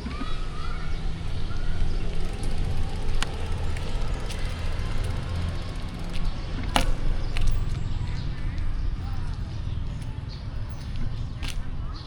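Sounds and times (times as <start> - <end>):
street traffic rumble: 0.0 - 12.0
sharp clicks: 1.9 - 8.7.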